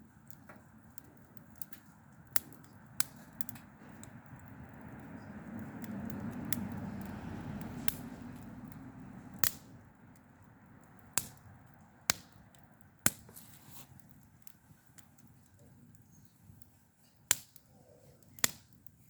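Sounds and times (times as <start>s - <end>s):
sharp snaps: 9.4s - 9.7s, 12.1s - 12.4s, 18.4s - 18.7s.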